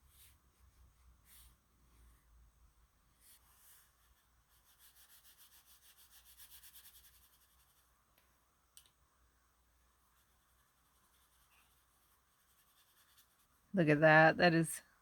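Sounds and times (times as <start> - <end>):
pencil strokes rubbing on paper: 0.0 - 2.2, 3.1 - 7.9, 10.1 - 13.7.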